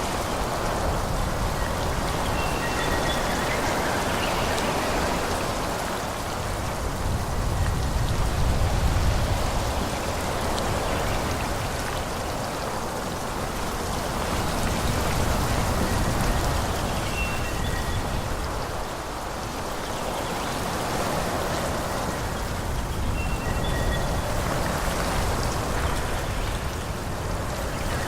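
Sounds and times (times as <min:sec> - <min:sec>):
wind blowing through trees: 0:00.0 - 0:28.0.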